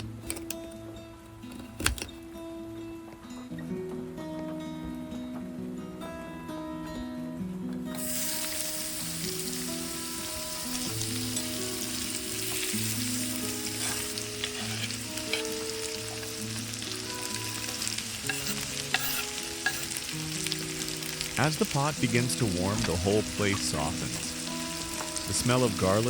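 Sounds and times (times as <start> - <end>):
soft sustained music notes: 2.4 - 26.0
garlic sizzling in a pot: 7.9 - 26.0.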